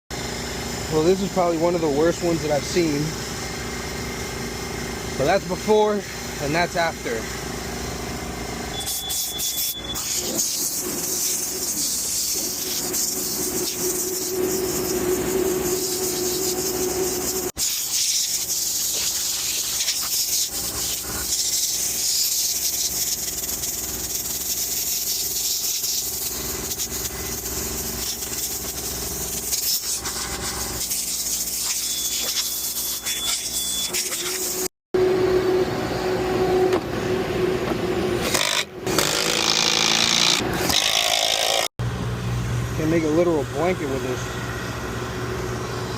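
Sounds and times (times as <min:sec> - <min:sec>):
hissing spray on coil: 0:08.8 - 0:34.7
low hum: 0:09.7 - 0:17.6, 0:35.0 - 0:38.8.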